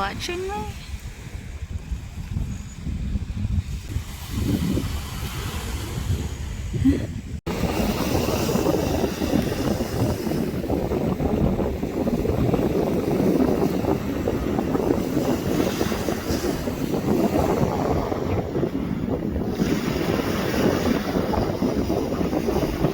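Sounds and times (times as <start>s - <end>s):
wind buffeting microphone: 0.0s - 22.9s.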